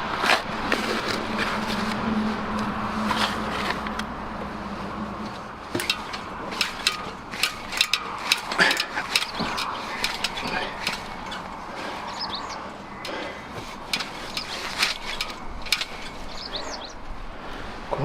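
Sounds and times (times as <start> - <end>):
sharp clicks and knocks: 5.2 - 17.0.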